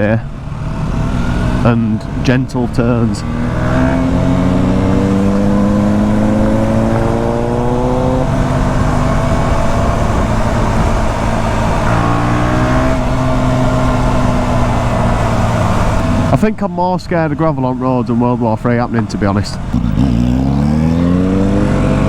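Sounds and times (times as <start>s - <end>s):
motorcycle engine pulling: 0.4s - 16.5s, 19.0s - 22.0s
wind rush: 3.2s - 16.3s.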